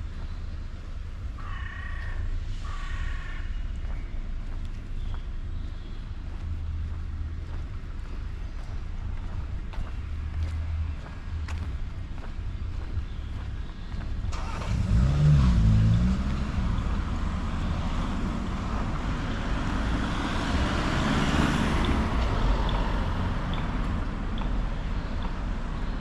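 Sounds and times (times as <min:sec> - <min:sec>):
steady low traffic rumble: 0:00.0 - 0:26.0
vehicle tyre noise: 0:05.0 - 0:26.0
car passing by: 0:14.3 - 0:24.3.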